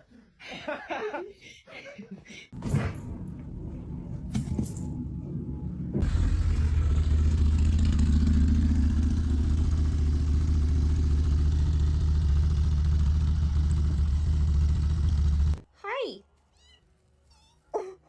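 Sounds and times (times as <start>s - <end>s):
motor rumbling: 2.6s - 15.6s.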